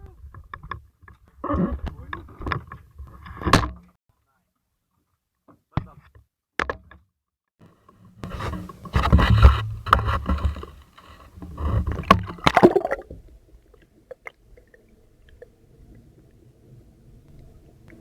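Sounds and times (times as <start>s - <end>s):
scraping and rustling handling noise: 7.9s - 12.4s.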